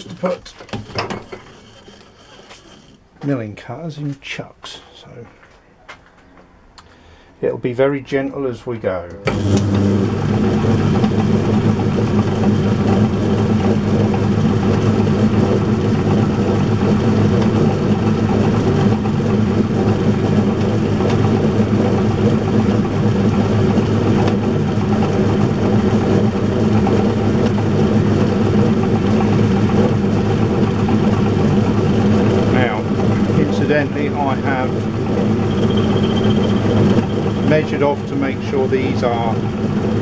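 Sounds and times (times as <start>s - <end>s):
lathe milling steel: 9.3s - 40.0s.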